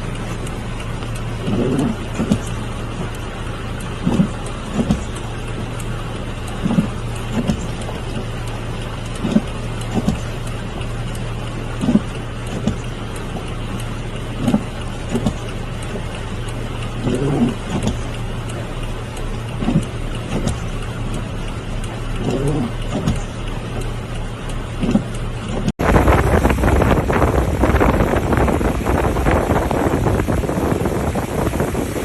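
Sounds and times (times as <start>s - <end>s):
rain hissing: 0.0s - 32.0s
vehicle engine hum: 0.0s - 32.0s
rough wind noise on microphone: 25.8s - 32.0s.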